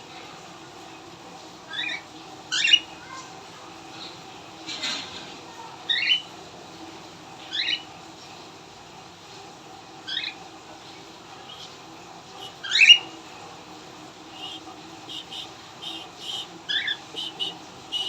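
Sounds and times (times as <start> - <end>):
cockatiel chirping: 12.4 - 13.1, 14.3 - 18.0.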